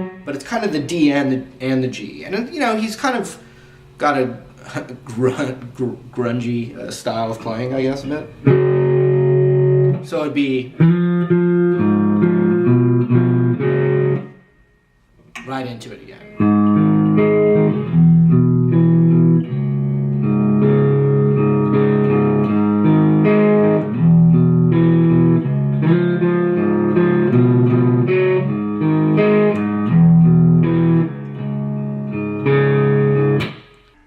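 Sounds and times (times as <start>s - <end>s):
electric guitar riff: 0.0s - 0.4s, 7.4s - 14.6s, 15.2s - 34.0s.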